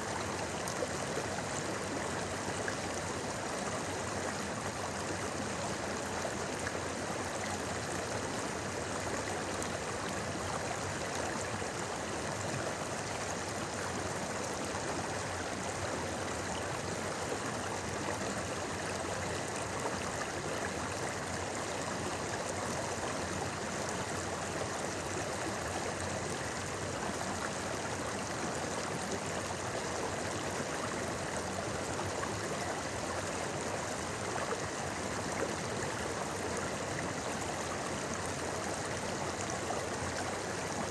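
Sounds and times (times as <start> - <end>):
river babbling: 0.0 - 40.9.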